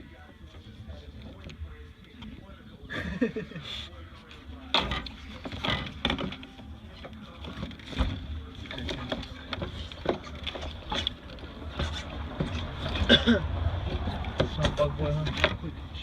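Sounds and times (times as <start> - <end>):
clicks and knocks of hand work: 4.7 - 13.1.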